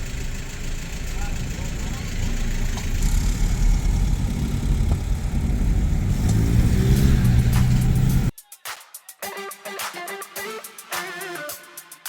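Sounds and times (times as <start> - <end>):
vehicle engine rumbling: 0.0 - 8.3.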